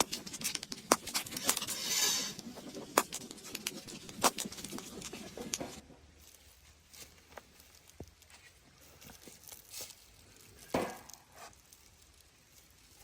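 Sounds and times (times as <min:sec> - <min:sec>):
sharp clicks and taps: 0:00.0 - 0:01.7.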